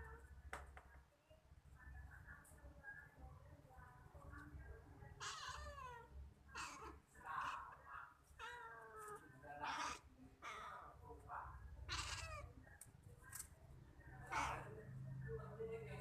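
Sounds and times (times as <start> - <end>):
cat meowing: 5.2 - 7.7, 11.8 - 12.5.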